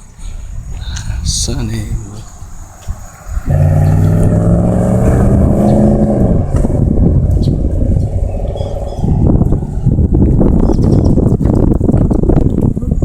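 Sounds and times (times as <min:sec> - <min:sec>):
vehicle passing by: 0:02.3 - 0:10.6.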